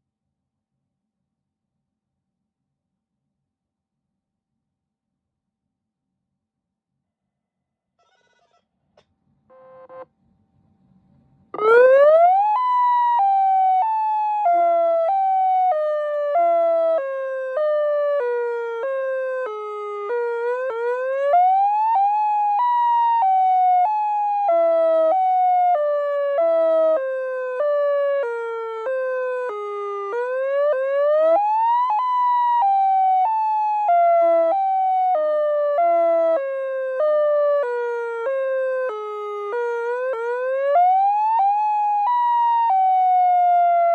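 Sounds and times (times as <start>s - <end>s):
electronic siren sweeping: 9.5s - 10.0s, 11.6s - 43.9s
short beep: 9.5s - 10.0s.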